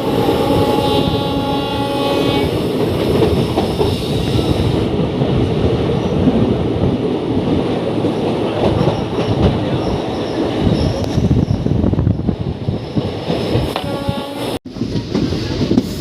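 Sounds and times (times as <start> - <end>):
train wheels clattering on track: 2.2 - 11.7, 12.8 - 16.0
high squeal from train wheels: 8.8 - 14.5.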